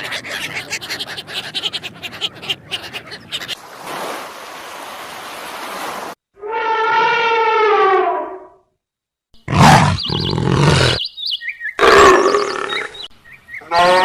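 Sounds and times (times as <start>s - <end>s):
pitched animal call: 6.4s - 8.6s, 9.5s - 11.0s, 13.6s - 14.0s
rough animal calls: 9.4s - 11.0s, 11.8s - 13.0s
warbling bird chirps: 9.4s - 13.7s.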